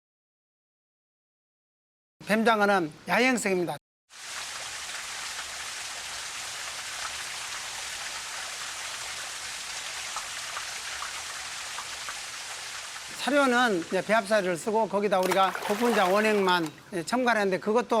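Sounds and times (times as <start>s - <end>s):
running water splashing: 4.1s - 16.9s
water drips and patters: 4.1s - 16.9s.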